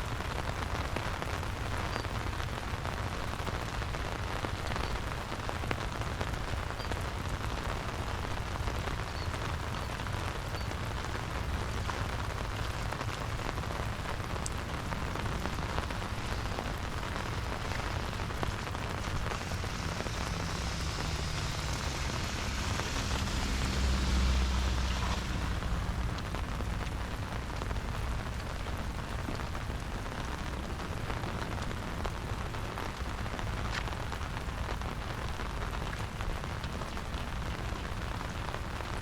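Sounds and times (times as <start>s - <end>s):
steady rain falling: 0.0s - 39.0s
low rumble: 11.0s - 29.0s.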